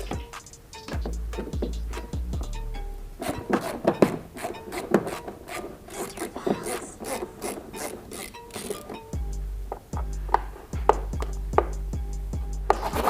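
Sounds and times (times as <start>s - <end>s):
hand tools clicking and scraping: 3.2s - 9.2s.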